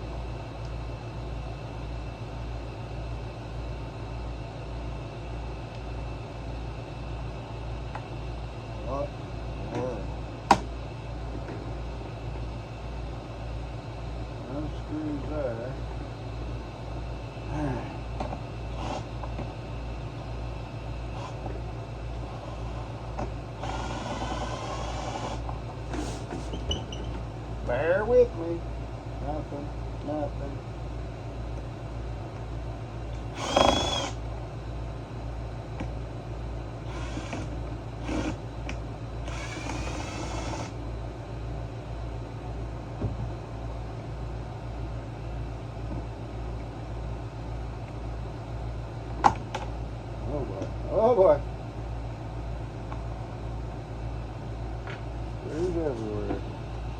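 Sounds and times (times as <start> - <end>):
steady low hum: 0.0 - 56.9
tool whirring: 18.3 - 19.5, 22.4 - 27.1, 33.1 - 34.2, 36.8 - 40.8.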